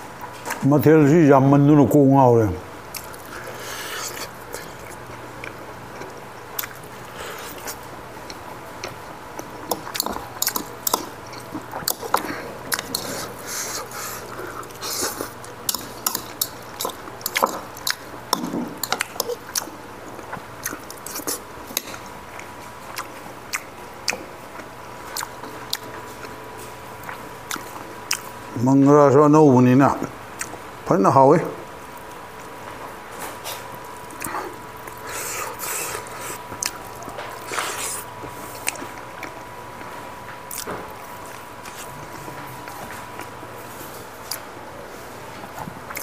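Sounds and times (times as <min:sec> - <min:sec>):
faint steady hum: 0:00.0 - 0:46.0
chewing and lip smacking: 0:02.9 - 0:28.4, 0:30.4 - 0:30.6, 0:33.4 - 0:43.4, 0:44.2 - 0:44.5.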